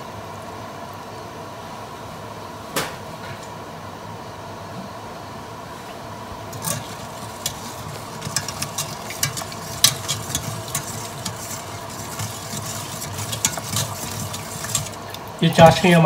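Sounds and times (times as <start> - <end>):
skimmer clinking against pot: 6.5 - 16.0
syrup bubbling: 6.5 - 16.0.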